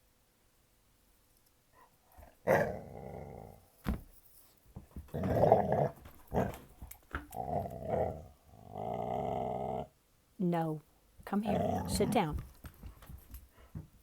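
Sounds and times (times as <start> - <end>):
puppy growling: 2.2 - 3.6, 5.1 - 9.9, 11.4 - 12.4.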